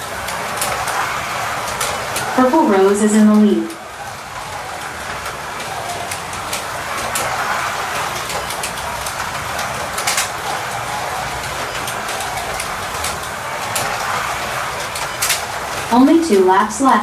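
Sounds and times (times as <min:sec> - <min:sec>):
slot cars whirring on track: 0:00.0 - 0:17.0
sharp clicks: 0:04.5 - 0:16.4.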